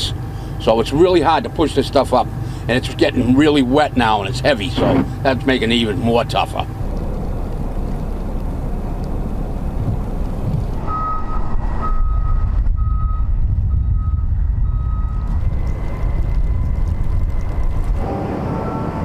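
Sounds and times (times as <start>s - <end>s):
steady low rumble: 0.0s - 19.0s
reversing alarm beeping: 10.8s - 15.4s, 18.0s - 19.0s.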